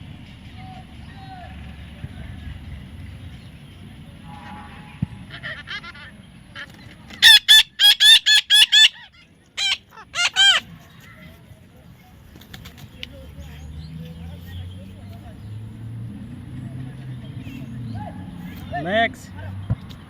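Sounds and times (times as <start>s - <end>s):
parrot squawking: 7.2s - 10.8s.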